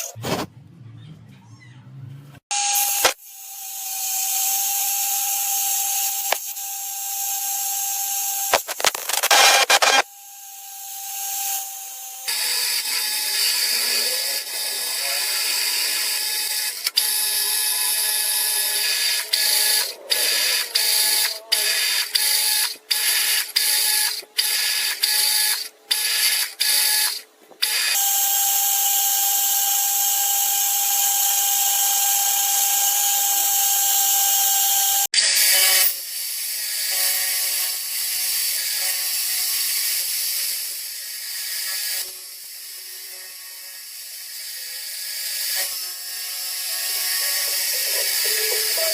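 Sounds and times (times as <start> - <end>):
machine tool whining: 44.2 - 48.9.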